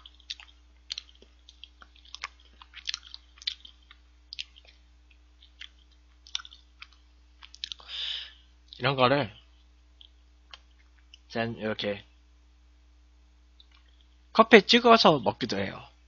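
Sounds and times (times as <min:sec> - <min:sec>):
person chewing soft bun: 0:00.0 - 0:08.8, 0:09.5 - 0:11.3, 0:13.5 - 0:14.3.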